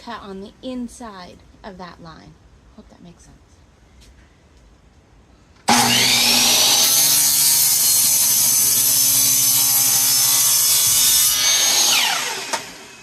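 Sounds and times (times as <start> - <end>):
electric power saw cutting: 5.7 - 13.0.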